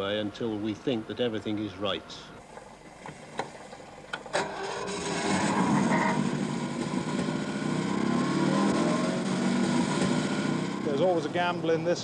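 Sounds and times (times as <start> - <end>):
engine running on test bed: 4.4 - 11.9.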